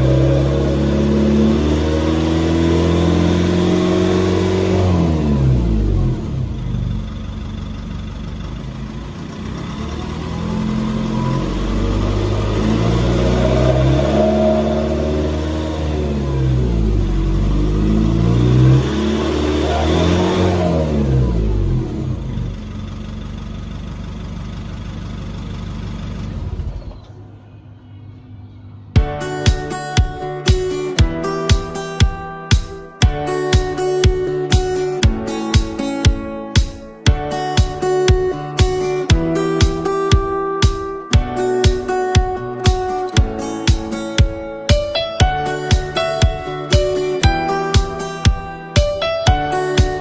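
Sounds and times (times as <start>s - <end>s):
pickup engine revving: 0.0s - 26.9s.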